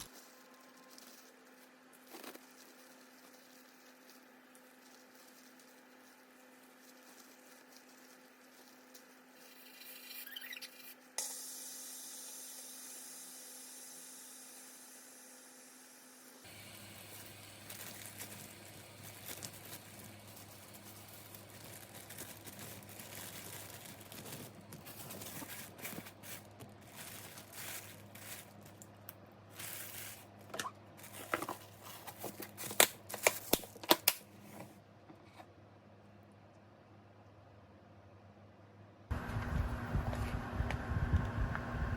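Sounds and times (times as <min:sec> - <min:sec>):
rustling crinkling and tearing: 0:00.0 - 0:09.6, 0:16.5 - 0:34.1
steady low hum: 0:35.7 - 0:41.9.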